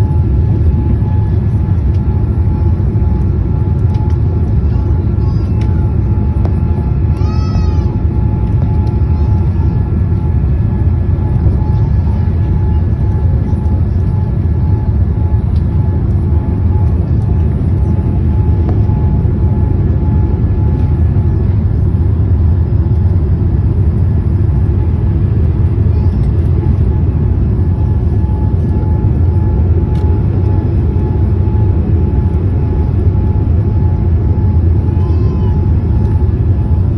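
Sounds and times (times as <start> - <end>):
airliner cabin engine rumble: 0.0 - 36.9
faint steady whine: 0.0 - 36.9.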